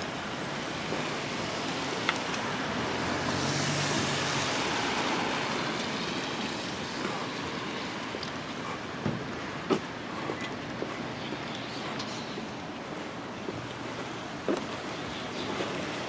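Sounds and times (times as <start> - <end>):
car passing on wet street: 0.0 - 16.0.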